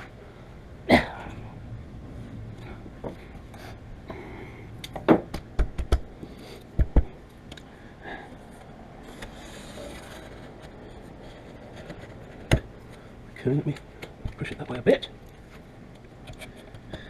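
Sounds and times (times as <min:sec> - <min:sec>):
low background noise: 0:00.0 - 0:17.0
sharp knocks and thumps: 0:04.9 - 0:06.1, 0:06.8 - 0:07.2.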